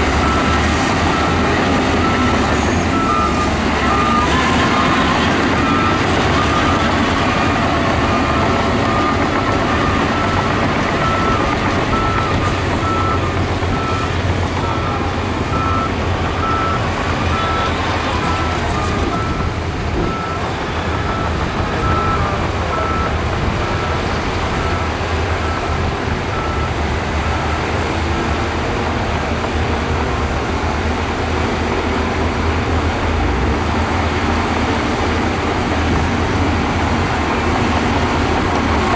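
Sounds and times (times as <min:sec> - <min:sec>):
reversing alarm beeping: 0:00.0 - 0:27.8
heavy machinery diesel engines: 0:00.0 - 0:38.9.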